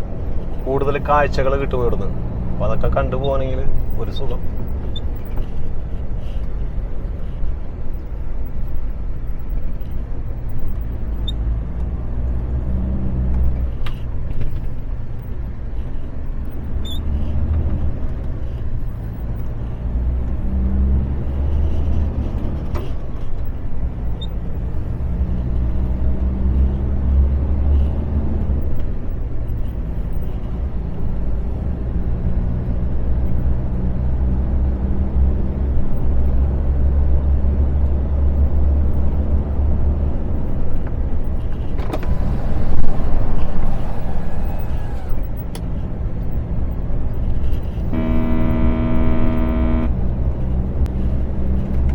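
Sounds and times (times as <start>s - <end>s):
truck diesel engine drone: 23.4s - 51.9s.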